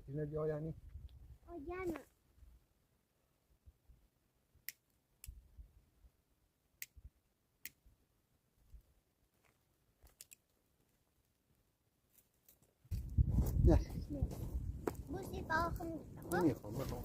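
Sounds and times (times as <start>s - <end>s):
faint sharp clicks: 4.6s - 5.4s.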